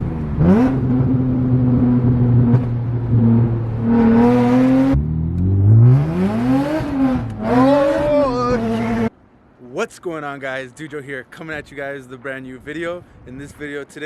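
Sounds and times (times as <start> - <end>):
car engine accelerating: 0.0 - 9.1.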